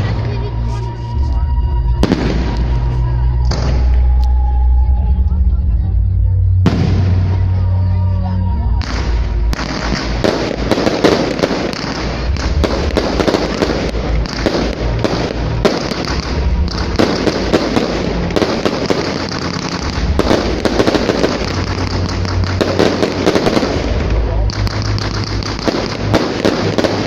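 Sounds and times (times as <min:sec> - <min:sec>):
fireworks bangs and crackling: 0:00.0 - 0:05.4, 0:06.6 - 0:27.0.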